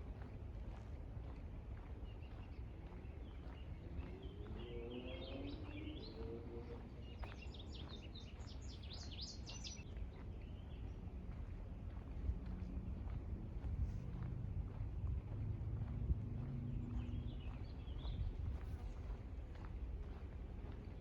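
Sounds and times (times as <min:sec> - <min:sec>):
walking: 0:09.9 - 0:21.0
wind rumble: 0:10.9 - 0:21.0.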